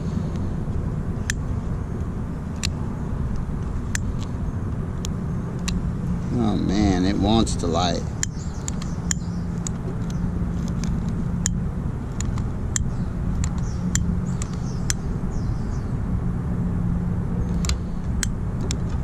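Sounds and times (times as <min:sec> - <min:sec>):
sharp clicks: 0:08.2 - 0:15.0.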